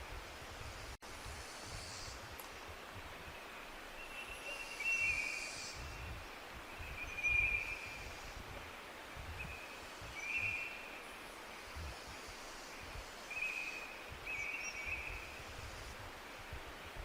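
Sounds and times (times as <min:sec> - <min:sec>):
steady hiss: 0:00.0 - 0:17.0
songbird chirping: 0:01.8 - 0:08.4, 0:09.4 - 0:11.6, 0:12.4 - 0:15.4.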